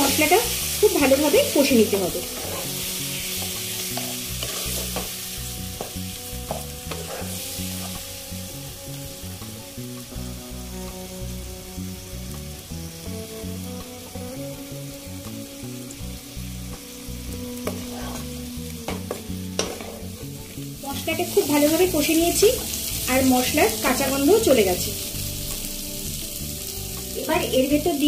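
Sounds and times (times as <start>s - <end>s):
vegetables sizzling in oil: 0.0s - 28.0s
spatula scraping pan: 2.1s - 5.2s, 5.8s - 8.0s.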